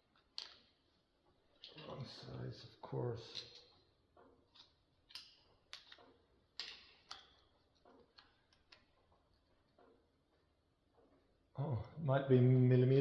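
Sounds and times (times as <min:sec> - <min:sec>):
metallic clicks of hand tools: 0:00.2 - 0:00.8, 0:04.5 - 0:09.0.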